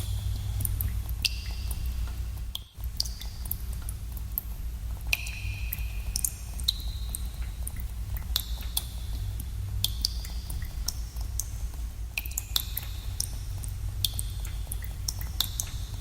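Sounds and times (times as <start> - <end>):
water drops plinking into pool: 5.1 - 8.9, 12.2 - 15.9.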